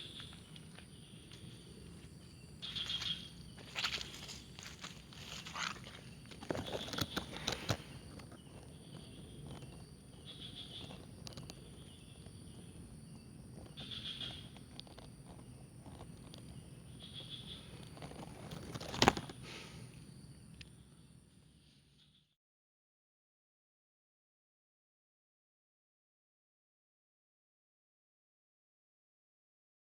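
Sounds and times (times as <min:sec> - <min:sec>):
faint bird calls: 0:00.0 - 0:12.8, 0:13.6 - 0:20.0
high insect drone: 0:00.0 - 0:22.2
rustling in leaves: 0:02.6 - 0:08.0.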